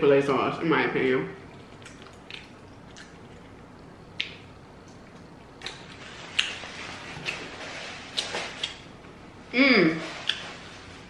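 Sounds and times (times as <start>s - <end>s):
person chewing with mouth clicks: 1.6s - 6.6s, 8.1s - 8.8s.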